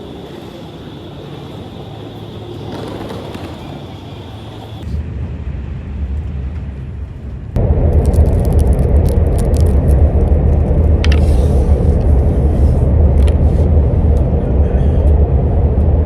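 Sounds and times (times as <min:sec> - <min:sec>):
loud low rumble: 0:04.9 - 0:16.0.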